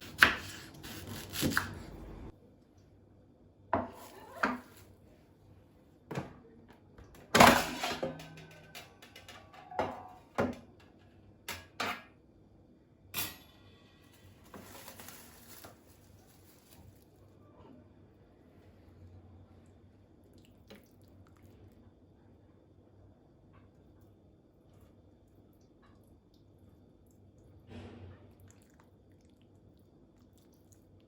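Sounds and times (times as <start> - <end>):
dishes and cutlery clinking: 7.2 - 12.1
scraping rustle: 14.4 - 17.2.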